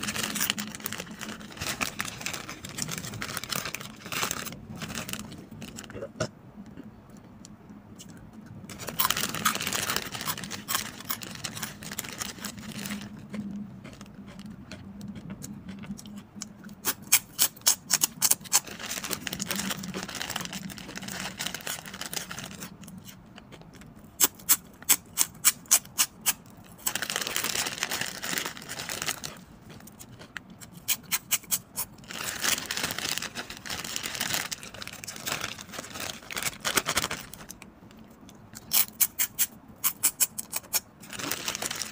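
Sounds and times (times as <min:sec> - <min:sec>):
plastic bag crinkling: 0:00.0 - 0:05.9, 0:08.7 - 0:13.2, 0:18.3 - 0:22.7, 0:26.7 - 0:29.5, 0:32.0 - 0:37.6, 0:41.0 - 0:41.9
crunchy food being chewed: 0:04.8 - 0:41.9.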